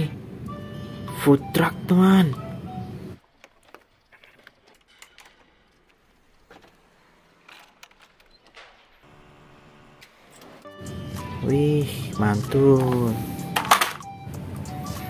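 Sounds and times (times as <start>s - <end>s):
plastic toy truck clicks and rustles: 3.2s - 9.0s, 12.8s - 14.1s.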